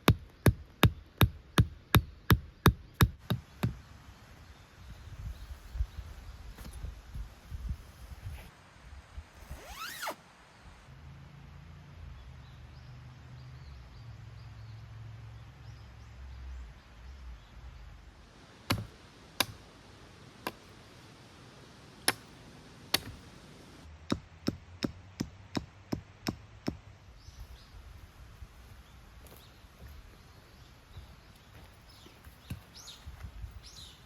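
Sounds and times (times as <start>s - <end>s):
hammer knocking tent pegs: 18.7s - 19.6s.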